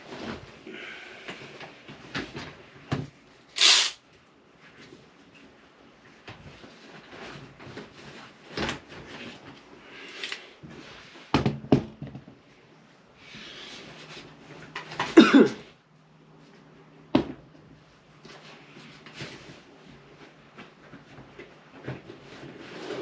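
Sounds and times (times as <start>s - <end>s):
sliding rustling noise: 4.6s - 11.3s, 18.1s - 23.0s.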